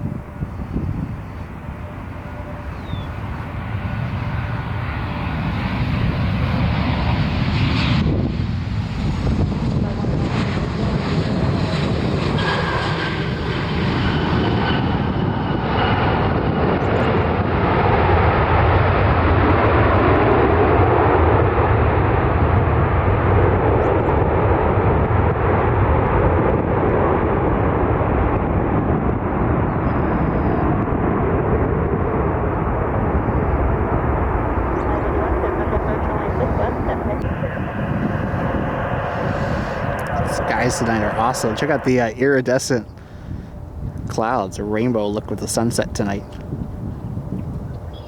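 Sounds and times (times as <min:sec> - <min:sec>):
jet engines rushing: 0:00.0 - 0:48.0
faint falling whine: 0:33.2 - 0:43.0.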